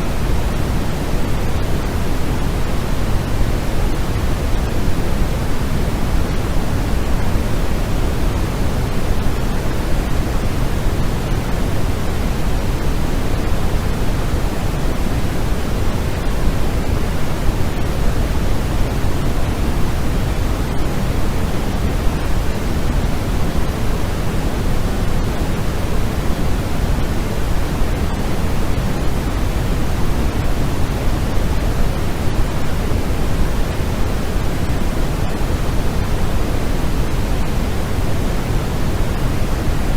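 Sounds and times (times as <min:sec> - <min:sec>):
steady synthetic pink noise: 0:00.0 - 0:39.9.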